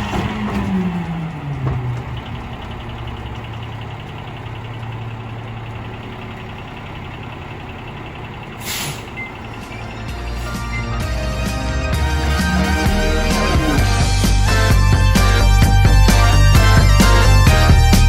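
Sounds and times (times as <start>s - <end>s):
garbage truck diesel engine idling: 0.0s - 18.0s
air brakes hiss: 8.6s - 9.3s.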